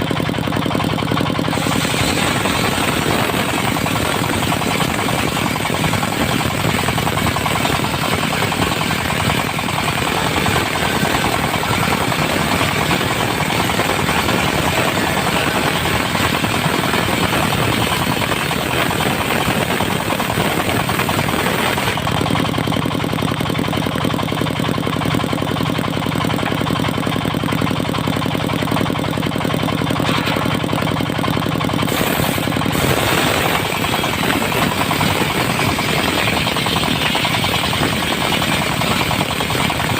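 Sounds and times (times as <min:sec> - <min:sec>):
diesel engine hum: 0:00.0 - 0:39.9
circular saw cutting wood: 0:01.4 - 0:22.4, 0:31.8 - 0:39.9.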